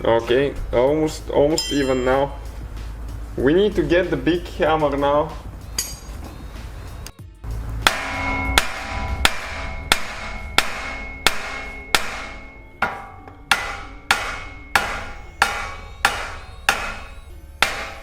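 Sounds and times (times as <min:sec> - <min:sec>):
hammer striking steel: 0:01.5 - 0:02.5, 0:05.8 - 0:06.3, 0:07.8 - 0:18.0.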